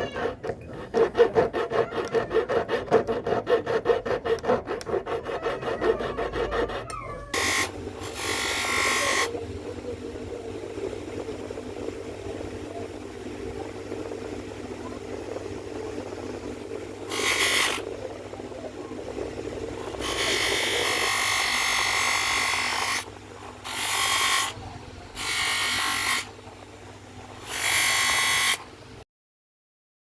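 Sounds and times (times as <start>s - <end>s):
rotary tool hissing: 0.0s - 2.8s, 4.2s - 9.3s, 17.1s - 17.9s, 19.8s - 26.4s, 27.2s - 28.7s
steady low hum: 0.0s - 29.0s.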